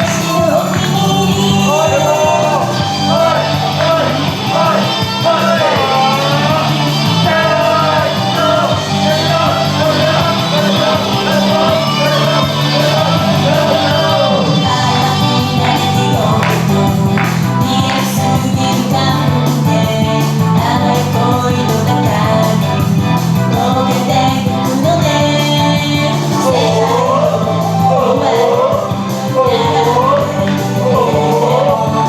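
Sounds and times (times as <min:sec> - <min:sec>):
pop backing track: 0:00.0 - 0:32.0
woman singing: 0:07.2 - 0:22.8, 0:23.5 - 0:32.0.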